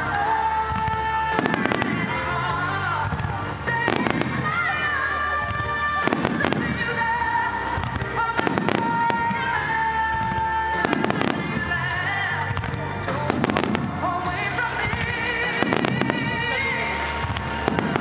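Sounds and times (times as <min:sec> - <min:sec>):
slow ballad music: 0:00.0 - 0:18.0
fireworks bursting: 0:00.4 - 0:18.0.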